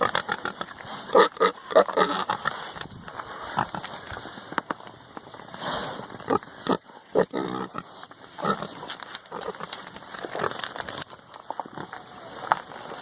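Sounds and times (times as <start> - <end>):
pigs grunting: 0.0 - 4.3, 5.5 - 10.7.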